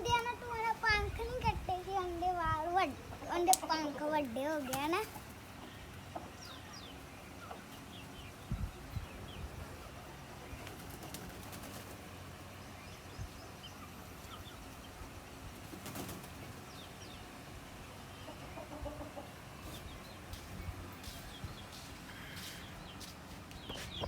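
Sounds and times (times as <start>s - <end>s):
chick peeping: 0.0s - 24.0s
chickens clucking: 0.0s - 24.0s
wings flapping: 3.5s - 5.4s, 10.5s - 12.1s, 15.0s - 16.7s.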